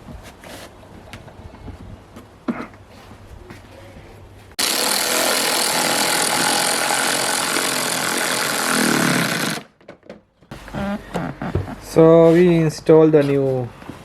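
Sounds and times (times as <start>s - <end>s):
loud power tool running: 4.6s - 9.7s.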